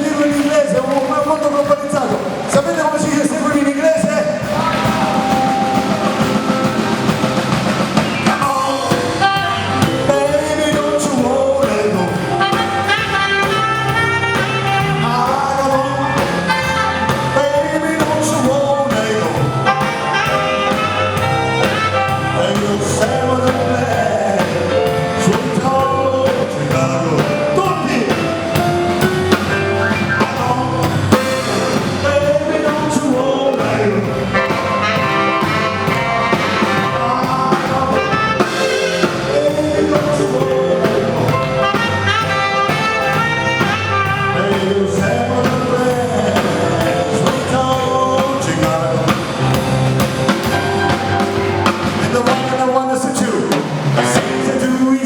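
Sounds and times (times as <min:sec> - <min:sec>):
melodic music with bass line: 0:04.4 - 0:52.8.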